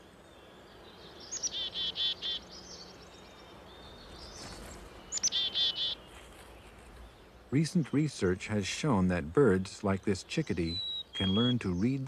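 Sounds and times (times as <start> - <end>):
faint woodland background: 0.0 - 12.0
chickadee calling: 0.7 - 6.2, 9.4 - 12.0.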